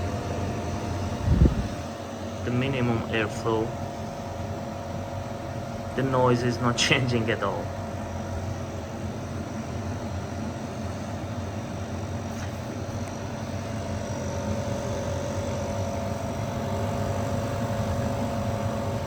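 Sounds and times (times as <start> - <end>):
air conditioner humming: 0.0 - 19.0.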